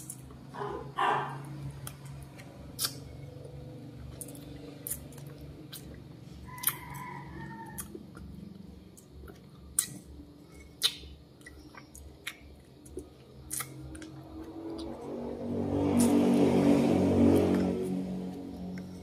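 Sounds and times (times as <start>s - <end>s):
lip smacks and chewing clicks: 1.8s - 3.5s, 7.6s - 15.0s
low hum with steady pitches: 7.2s - 19.0s.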